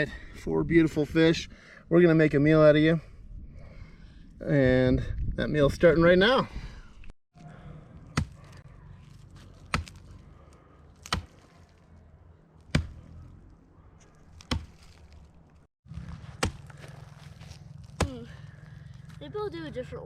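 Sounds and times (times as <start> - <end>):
hatchet chopping into log: 9.7 - 10.0, 11.0 - 11.4, 12.7 - 13.1, 14.4 - 14.9.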